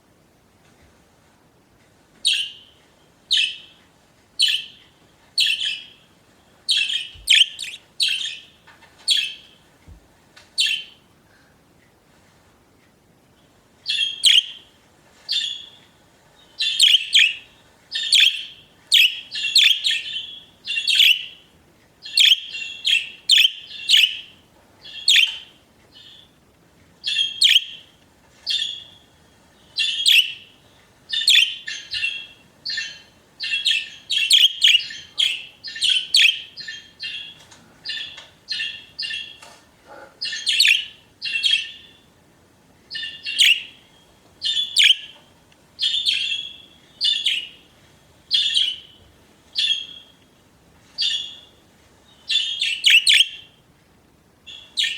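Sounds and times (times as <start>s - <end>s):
budgerigars chirping: 6.7s - 9.4s, 10.6s - 10.9s, 13.9s - 14.6s, 16.6s - 21.4s, 22.0s - 26.2s, 27.0s - 27.8s, 29.8s - 30.5s, 31.1s - 42.0s, 42.9s - 43.8s, 44.4s - 45.2s, 45.8s - 47.6s, 48.3s - 49.0s, 49.6s - 50.2s, 52.3s - 53.5s, 54.5s - 54.9s.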